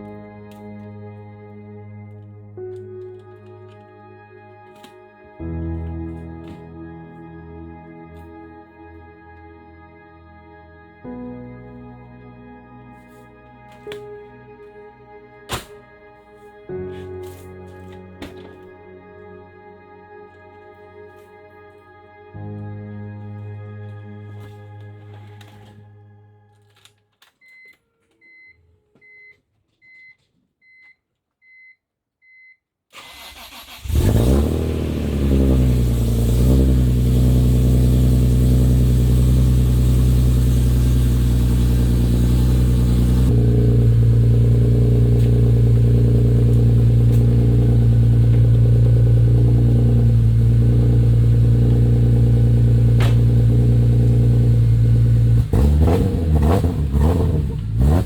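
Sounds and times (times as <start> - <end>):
car engine cranking and idling: 33.0 - 58.0.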